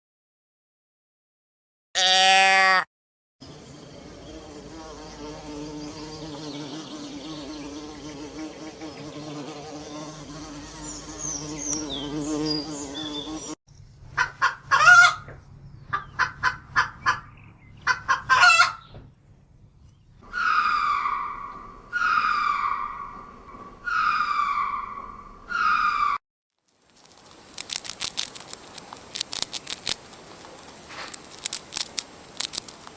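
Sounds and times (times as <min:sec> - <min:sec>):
insect buzzing: 0:03.5 - 0:13.6, 0:20.2 - 0:26.2
faint high bird chirps: 0:20.2 - 0:26.2.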